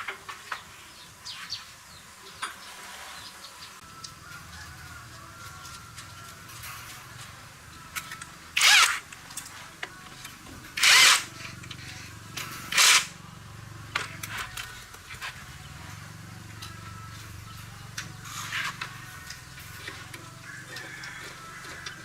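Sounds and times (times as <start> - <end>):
power tool whining: 8.6 - 9.0, 10.8 - 12.1, 12.7 - 13.1.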